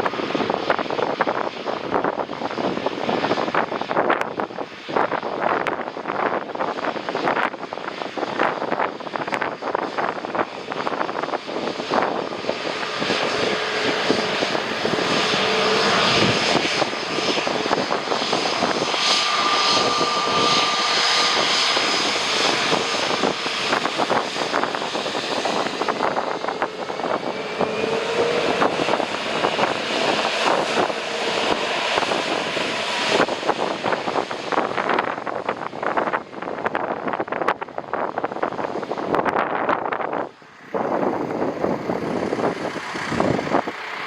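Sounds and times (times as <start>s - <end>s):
jet airliner passing: 0.0s - 44.0s
wind buffeting microphone: 0.0s - 44.0s.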